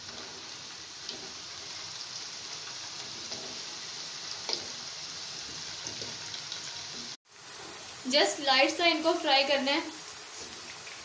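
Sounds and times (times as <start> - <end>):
meatballs sizzling in oil: 0.0 - 11.0.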